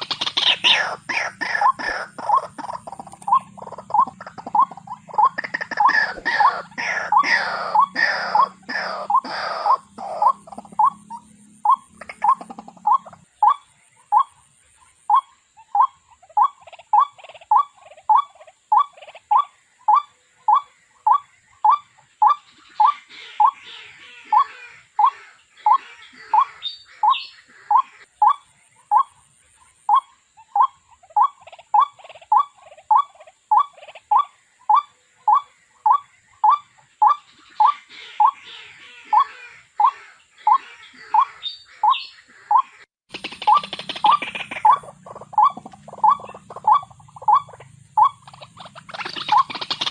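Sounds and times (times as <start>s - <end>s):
bird calling short rising notes: 0.0s - 13.2s
higher bird chattering calls: 0.0s - 49.9s.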